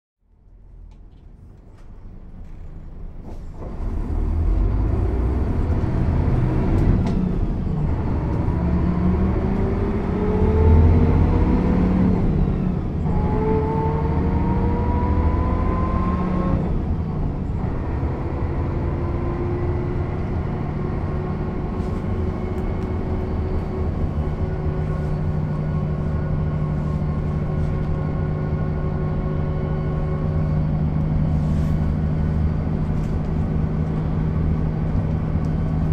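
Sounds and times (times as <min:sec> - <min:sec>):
diesel bus engine accelerating: 0:00.2 - 0:35.9.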